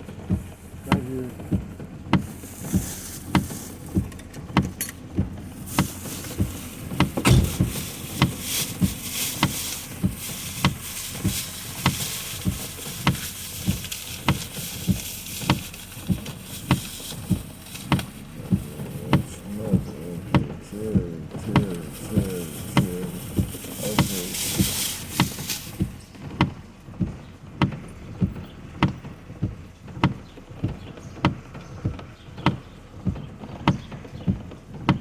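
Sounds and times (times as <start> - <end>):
turn signal ticking: 0.0 - 35.0
windshield wipers swishing: 0.0 - 35.0
rain: 5.1 - 27.1.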